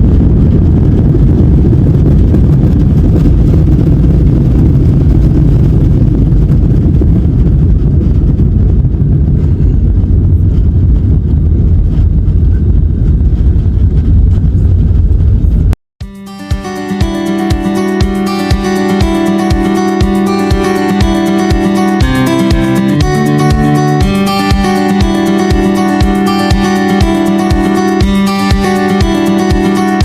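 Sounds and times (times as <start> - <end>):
airliner cabin engine rumble: 0.0 - 15.8.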